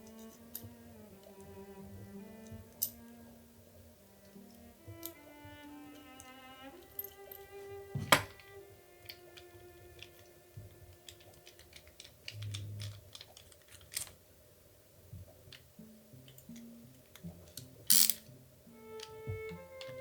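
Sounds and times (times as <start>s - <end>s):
small clicks and taps of parts: 0.0s - 1.5s, 6.0s - 14.2s, 19.0s - 20.0s
background music: 0.0s - 13.1s, 15.4s - 20.0s
parts clattering: 5.9s - 10.3s, 10.9s - 14.2s.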